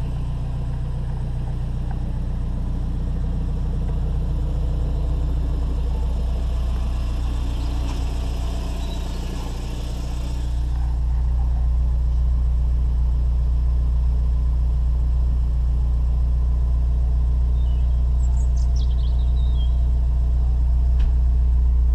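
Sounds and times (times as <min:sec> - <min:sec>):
car engine idling: 0:00.0 - 0:21.9.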